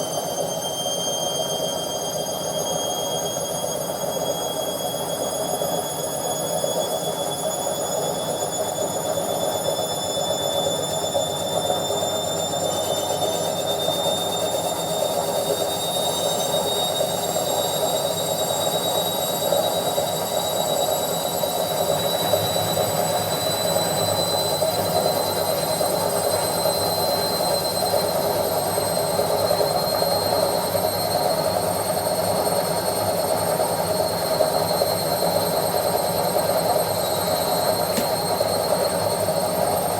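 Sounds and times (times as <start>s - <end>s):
high motor whine: 33.2s - 39.9s.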